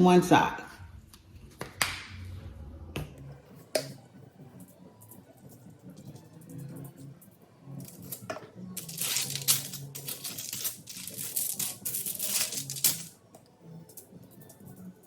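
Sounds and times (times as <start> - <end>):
faint background music: 0.0 - 15.0
spice shaker rattling: 7.8 - 13.2.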